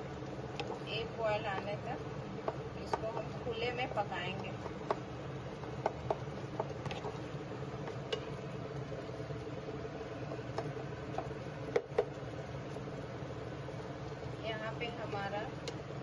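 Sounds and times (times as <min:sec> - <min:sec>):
spatula tapping and scraping pan: 0:02.4 - 0:07.2, 0:10.2 - 0:12.2.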